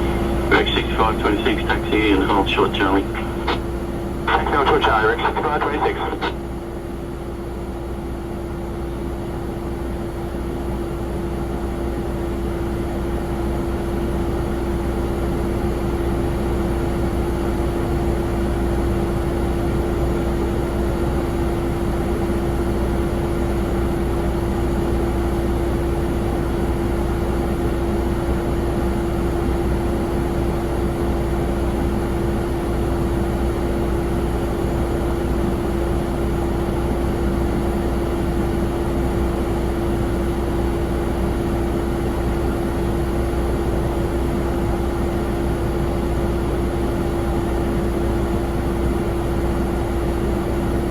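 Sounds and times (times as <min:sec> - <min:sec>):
jet engines running: 0:00.0 - 0:06.5.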